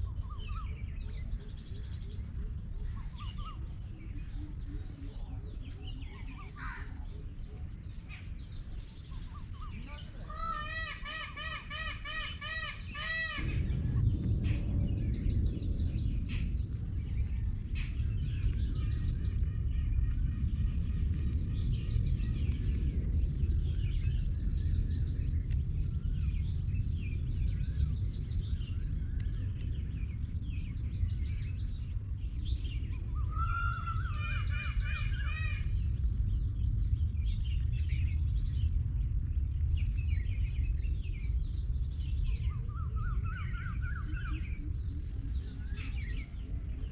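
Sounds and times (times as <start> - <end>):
low rumble: 0.0 - 46.9
small birds chirping: 0.0 - 46.9
loud arching bird calls: 9.3 - 14.6, 32.9 - 35.9.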